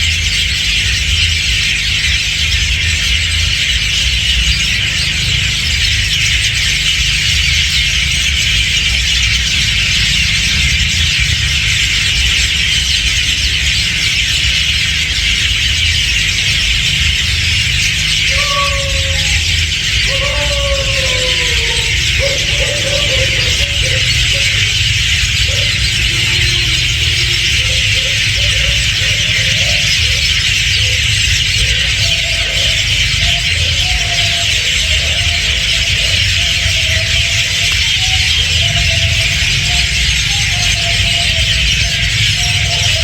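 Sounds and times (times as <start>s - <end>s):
flock of birds chattering: 0.0s - 43.0s.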